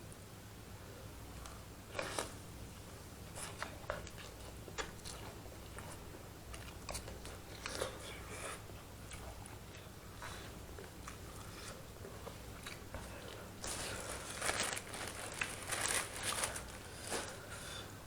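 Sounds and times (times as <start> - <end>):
soft chewing and mouth clicks: 1.3 - 14.6
hissing eating noises: 6.8 - 14.3.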